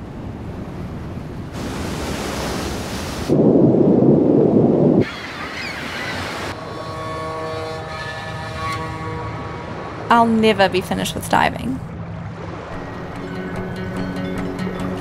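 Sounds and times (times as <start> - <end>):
low rush of water: 0.0 - 3.4
surf hissing: 1.5 - 3.4.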